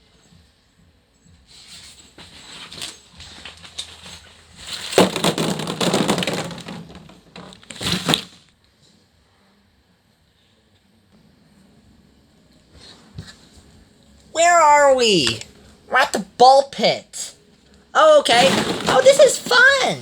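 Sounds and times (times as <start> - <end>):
plastic balls clattering and rustling: 2.4 - 8.5, 18.3 - 20.0.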